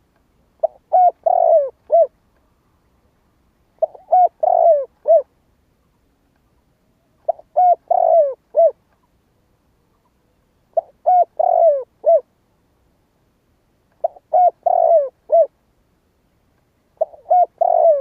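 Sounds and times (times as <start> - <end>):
dove cooing: 0.6 - 2.2, 3.8 - 5.3, 7.2 - 8.8, 10.7 - 12.3, 14.0 - 15.6, 17.0 - 18.0.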